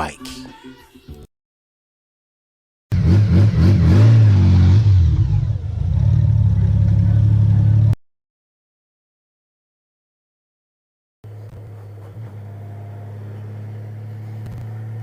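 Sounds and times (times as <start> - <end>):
motorcycle engine revving: 2.9 - 8.0, 11.3 - 15.0.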